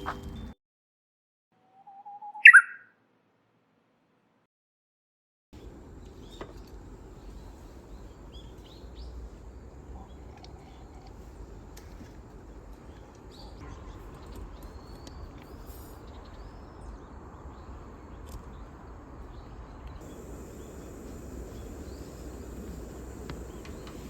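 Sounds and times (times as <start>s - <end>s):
faint bird chirps: 1.6s - 3.0s
low steady rumble: 19.2s - 24.0s.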